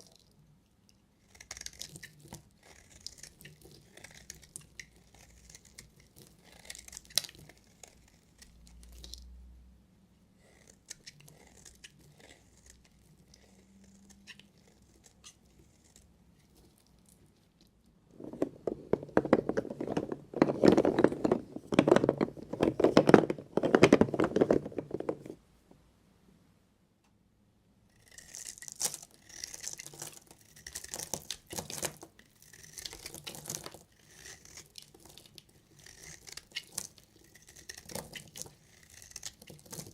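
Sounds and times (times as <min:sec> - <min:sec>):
knife crunching through soap: 0:01.2 - 0:09.3, 0:10.4 - 0:17.3, 0:27.9 - 0:39.9.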